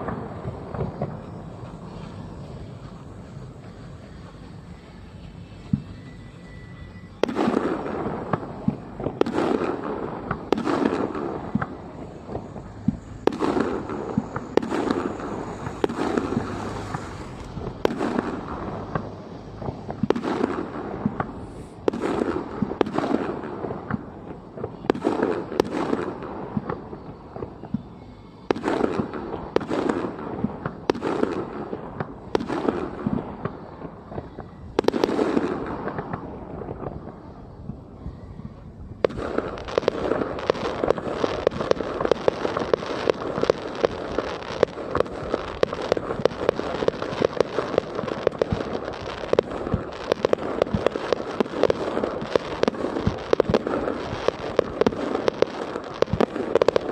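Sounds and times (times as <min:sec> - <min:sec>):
fireworks crackling: 0:00.0 - 0:56.9
firework shells booming: 0:07.2 - 0:24.2, 0:39.0 - 0:56.9.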